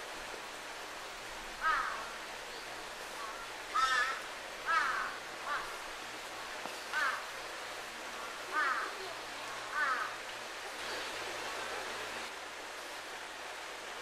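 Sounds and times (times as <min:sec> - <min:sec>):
river water flowing: 0:00.0 - 0:14.0
bird harsh calls: 0:03.2 - 0:05.8.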